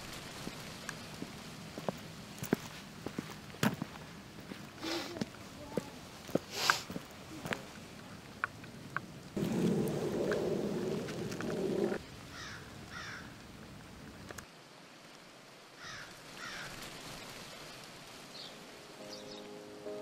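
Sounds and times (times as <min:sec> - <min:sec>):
loud low rushing noise: 0:09.4 - 0:12.0.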